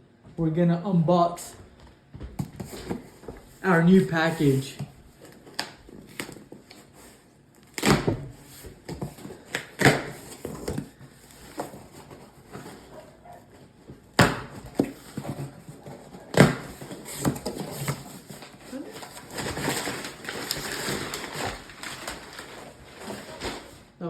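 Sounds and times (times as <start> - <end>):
cardboard rustling: 2.4 - 24.0
knocks and thuds of package: 7.7 - 12.8, 13.9 - 18.5.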